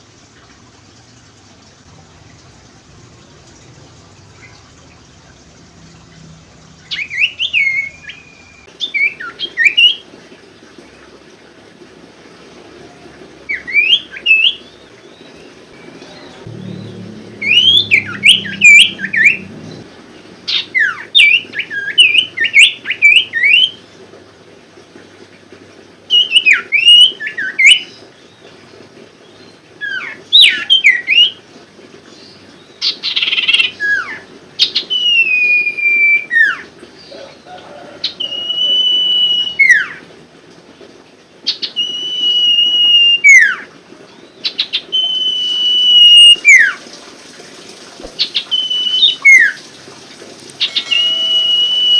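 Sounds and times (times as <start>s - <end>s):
bird warbling chirps: 4.2s - 9.8s, 15.8s - 19.8s, 50.6s - 51.9s
bird long swooping whistles: 15.8s - 19.8s, 34.8s - 36.6s, 37.7s - 40.0s, 41.8s - 43.6s, 44.9s - 46.8s, 48.2s - 49.6s, 50.6s - 51.9s.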